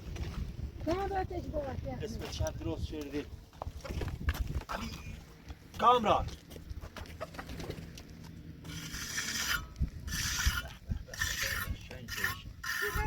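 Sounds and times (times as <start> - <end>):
trowel scraping cement on wall: 8.6 - 13.0.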